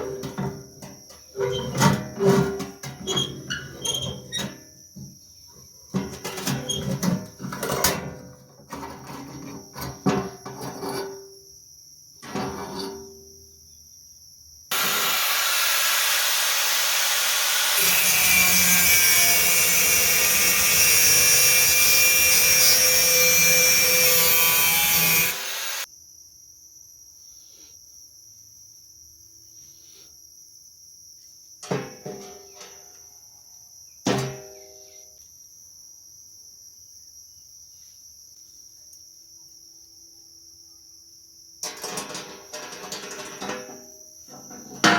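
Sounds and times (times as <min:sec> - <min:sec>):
power tool grinding steel: 0:14.7 - 0:25.9.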